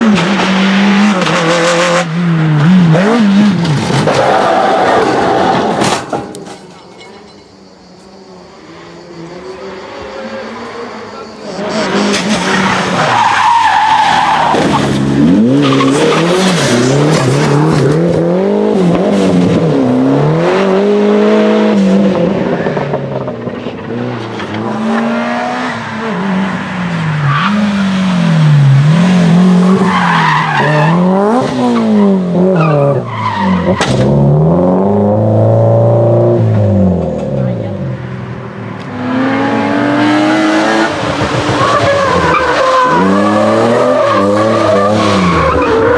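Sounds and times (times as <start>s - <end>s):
race car engine revving: 8.6s - 45.9s
tyre squeal: 41.5s - 45.9s.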